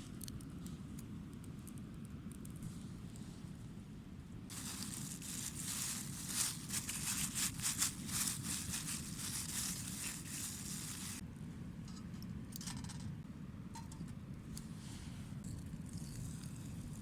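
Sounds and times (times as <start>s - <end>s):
steady low rumble: 0.0s - 17.0s
crinkling and rustling handling noise: 4.5s - 11.2s.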